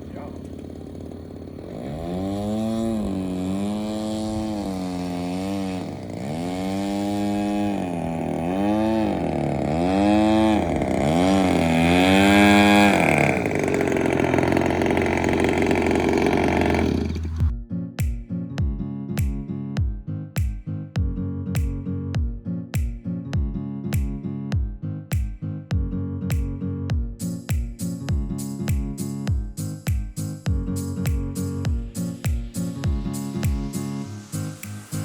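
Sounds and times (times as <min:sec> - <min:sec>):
model airplane engine revving: 0:00.0 - 0:17.5.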